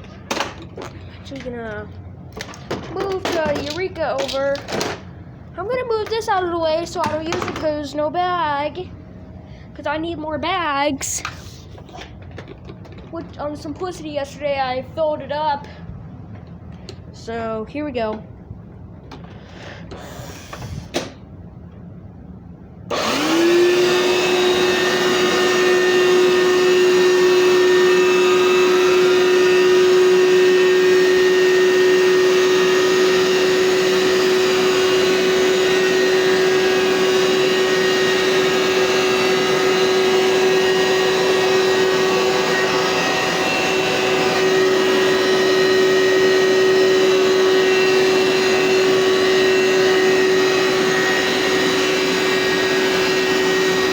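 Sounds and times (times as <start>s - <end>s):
carpet cleaner motor whining: 22.9s - 53.9s.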